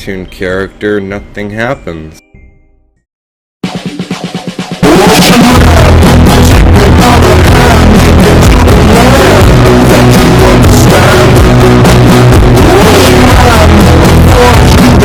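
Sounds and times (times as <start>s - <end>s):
loud rock music: 3.6s - 15.0s
person singing: 4.8s - 15.0s.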